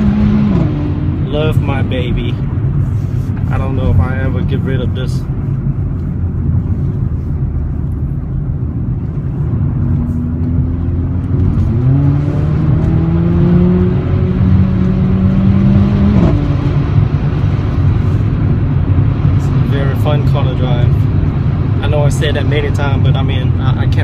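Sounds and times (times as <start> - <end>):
car engine accelerating: 0.0 - 24.0
low road rumble: 0.0 - 24.0.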